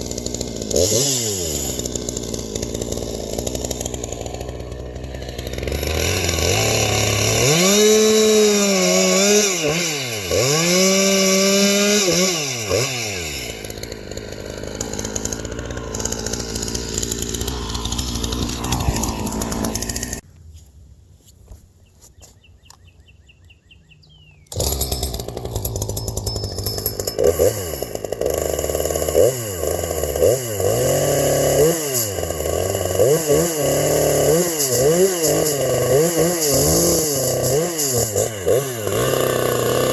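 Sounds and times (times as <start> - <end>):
chainsaw revving: 0.0 - 20.2, 24.5 - 39.9.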